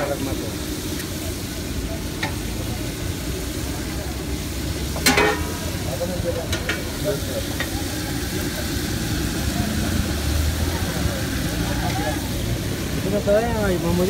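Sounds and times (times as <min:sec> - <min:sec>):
beans sizzling on metal pan: 0:00.0 - 0:14.0
metal ladle clanking on pan: 0:05.0 - 0:05.7, 0:06.4 - 0:06.9.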